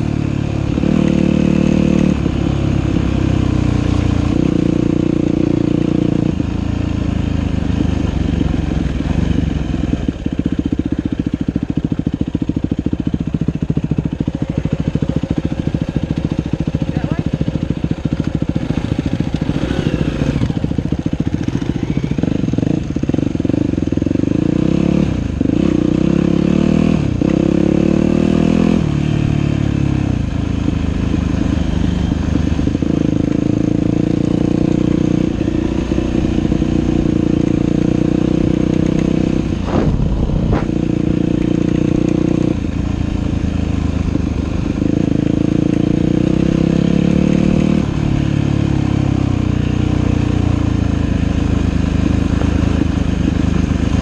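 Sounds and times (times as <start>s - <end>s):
dirt bike engine revving: 0.0s - 10.7s, 11.3s - 54.0s
brief clatter: 39.6s - 40.8s.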